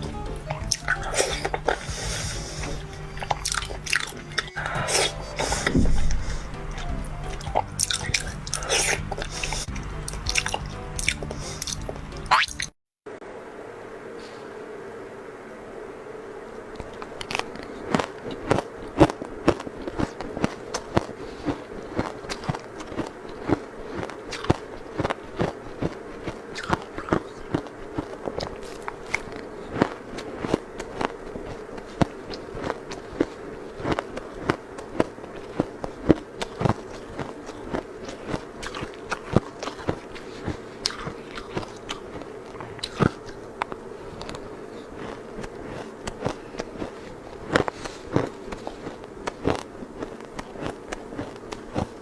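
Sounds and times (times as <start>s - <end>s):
soft background music: 0.0s - 12.4s
crunchy biting and chewing: 0.5s - 12.7s, 16.8s - 52.0s.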